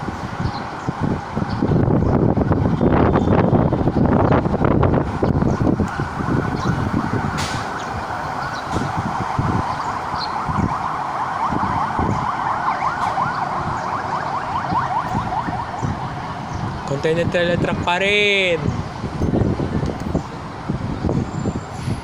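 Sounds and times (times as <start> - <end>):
road traffic rumble: 0.0 - 22.0
siren in fast yelp: 8.3 - 16.2.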